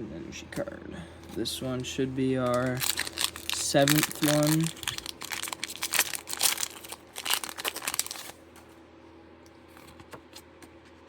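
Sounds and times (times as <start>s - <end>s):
foil wrapper tearing and crinkling: 2.4s - 8.4s.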